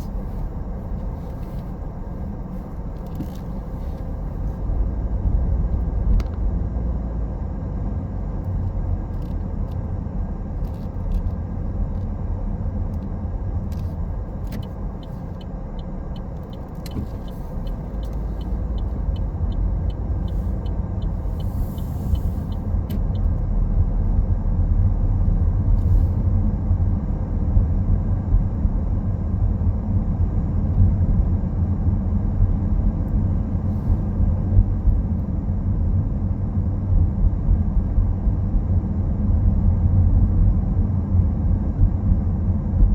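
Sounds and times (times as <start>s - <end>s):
car engine and tyre rumble: 0.0s - 42.9s
light evenly spaced ticks: 14.5s - 23.2s.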